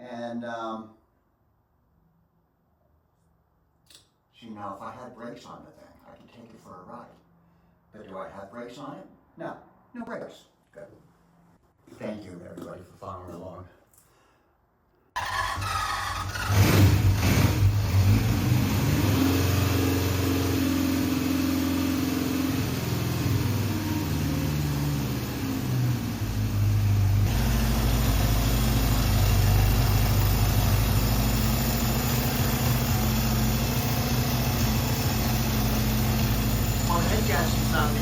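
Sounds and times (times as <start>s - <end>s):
motorcycle engine running: 16.1s - 38.0s.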